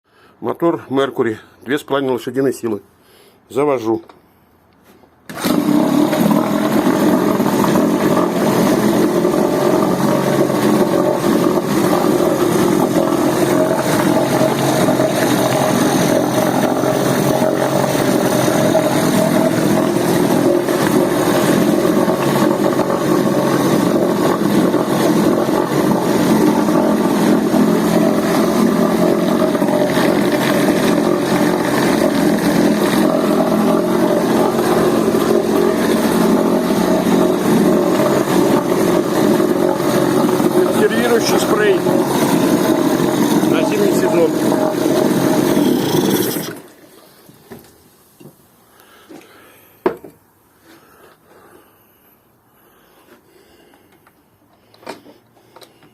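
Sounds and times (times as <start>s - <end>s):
outboard motor running: 5.3s - 47.6s.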